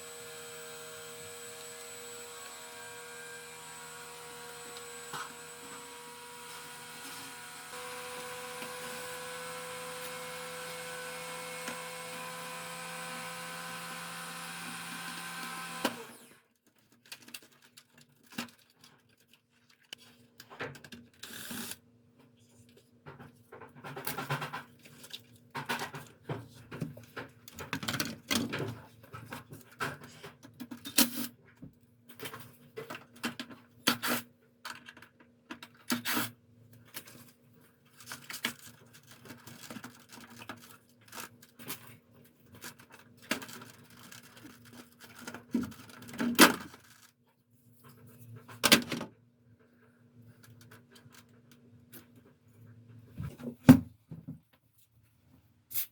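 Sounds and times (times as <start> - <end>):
plastic parts clicking and rustling: 14.9 - 21.8, 22.6 - 47.3, 50.3 - 52.2.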